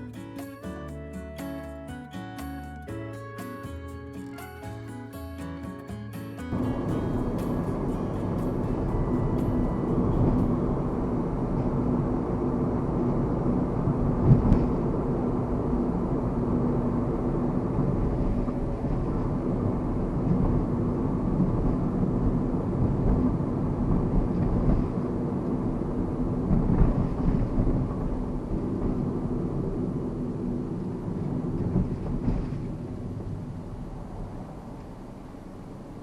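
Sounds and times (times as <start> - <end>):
road noise: 0.0 - 22.8.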